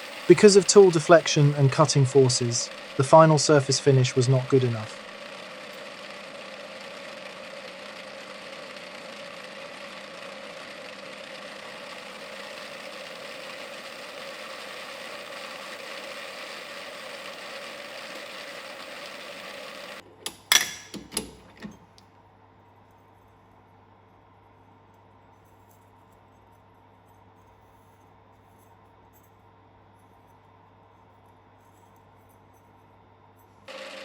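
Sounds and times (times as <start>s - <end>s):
lathe running and cutting: 0.0s - 21.8s, 33.7s - 34.0s.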